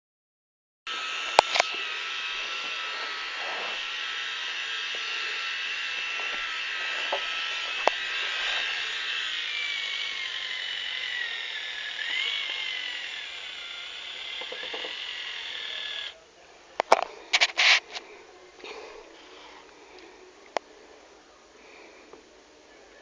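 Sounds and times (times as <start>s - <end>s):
mechanical whirring: 0.9s - 16.2s.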